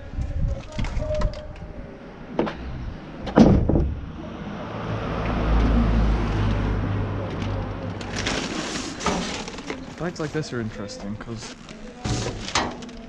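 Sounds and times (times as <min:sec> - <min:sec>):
vehicle passing by: 0:04.0 - 0:08.3
rubbish rustling and clattering: 0:07.3 - 0:13.0.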